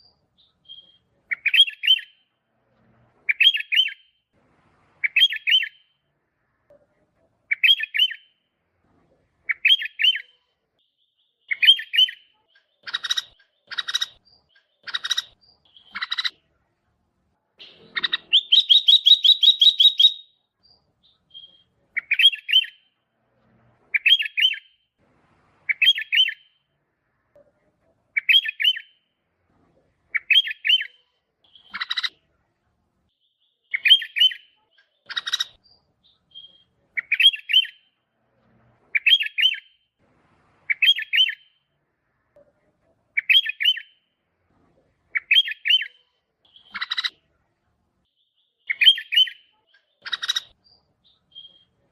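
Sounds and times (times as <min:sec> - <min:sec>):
bulbul calling: 0:00.0 - 0:02.2, 0:05.0 - 0:05.8, 0:11.5 - 0:16.4, 0:17.6 - 0:20.4, 0:21.0 - 0:22.8, 0:30.1 - 0:32.1, 0:33.7 - 0:37.8, 0:45.1 - 0:47.1, 0:48.6 - 0:51.8.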